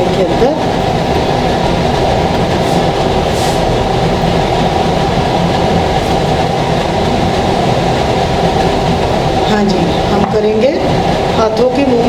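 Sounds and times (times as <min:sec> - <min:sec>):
loud steady rumbling: 0:00.0 - 0:12.0.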